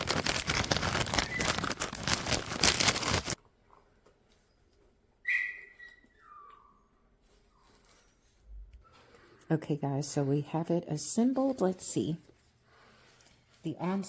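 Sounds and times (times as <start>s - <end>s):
plastic packaging crinkling: 0.0s - 3.4s.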